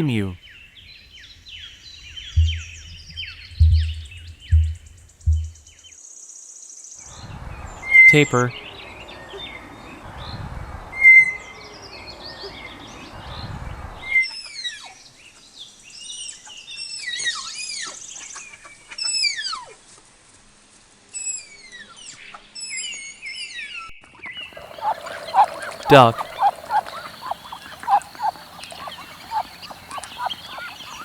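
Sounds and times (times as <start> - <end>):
background noise: 0.0 - 0.4, 24.4 - 31.0
tapir whistling squeals: 24.5 - 31.0.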